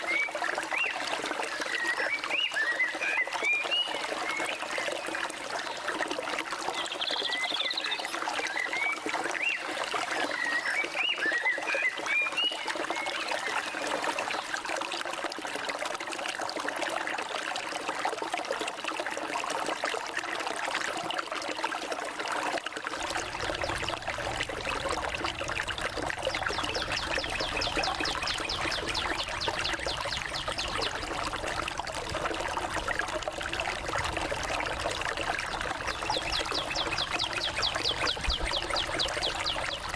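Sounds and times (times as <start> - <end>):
forest stream running: 0.0 - 39.9
birds chirping: 23.2 - 31.7, 35.5 - 39.9.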